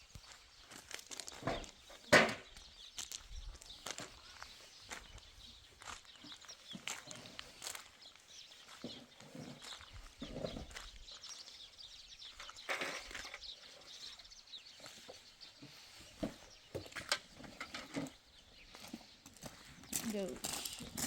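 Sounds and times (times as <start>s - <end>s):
livestock footsteps: 0.0s - 21.0s.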